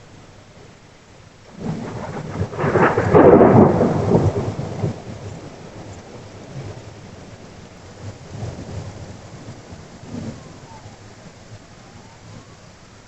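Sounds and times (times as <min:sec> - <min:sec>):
steady rain: 0:00.0 - 0:13.0
thunder crashing rumble: 0:01.5 - 0:12.5.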